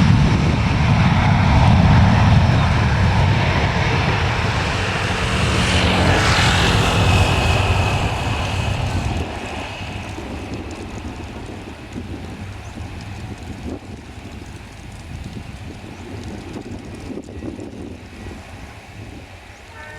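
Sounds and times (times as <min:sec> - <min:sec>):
high engine whine: 0:00.0 - 0:17.3
airliner engines passing: 0:00.0 - 0:19.9.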